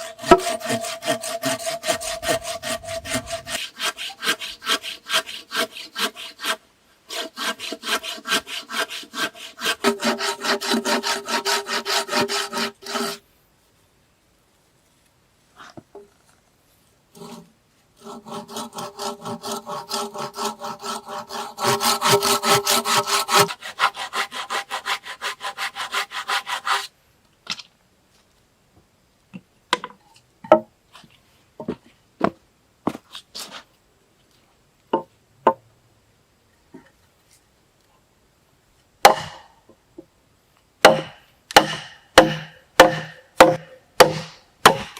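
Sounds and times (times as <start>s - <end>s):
hand saw cutting wood: 0.0s - 13.2s, 17.2s - 26.9s, 39.1s - 39.5s, 40.8s - 44.9s.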